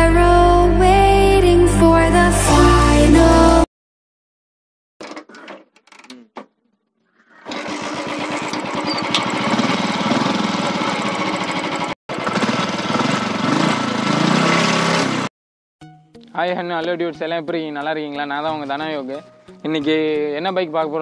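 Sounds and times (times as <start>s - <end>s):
motorcycle engine running: 7.6s - 15.3s.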